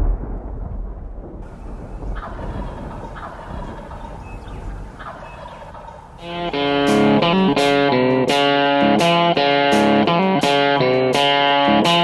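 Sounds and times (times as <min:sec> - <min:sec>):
turkey gobbling: 0:01.5 - 0:08.5.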